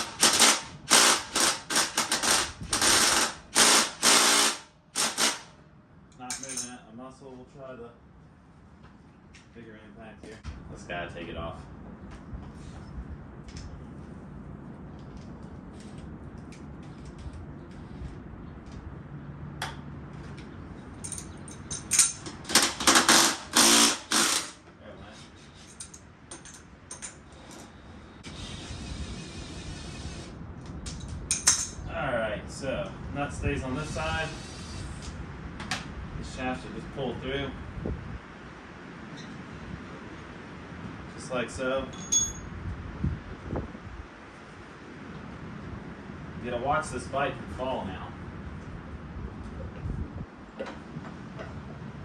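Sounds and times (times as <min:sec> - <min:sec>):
impact wrench hammering: 0:00.0 - 0:05.5, 0:21.1 - 0:24.6
tool handling clicks: 0:06.3 - 0:06.7.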